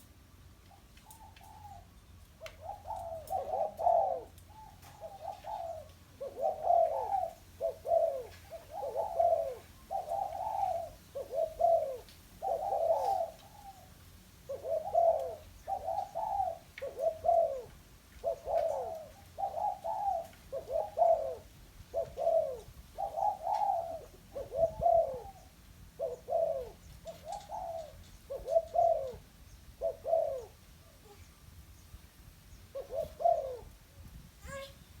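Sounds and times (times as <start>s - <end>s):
dove cooing: 0.7s - 31.4s, 32.6s - 34.8s.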